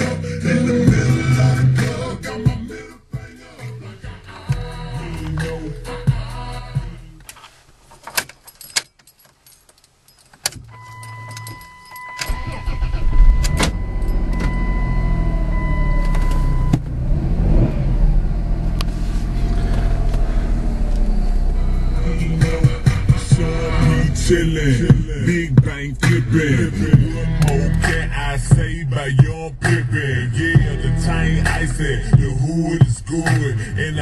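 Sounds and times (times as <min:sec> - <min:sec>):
car engine starting and idling: 0:00.0 - 0:03.2, 0:09.8 - 0:34.0
keys jingling in ignition: 0:07.9 - 0:14.6.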